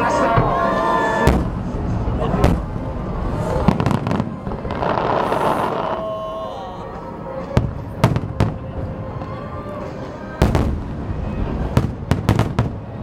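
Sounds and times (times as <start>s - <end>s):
fireworks bursting bangs: 1.2s - 6.0s, 10.4s - 13.0s.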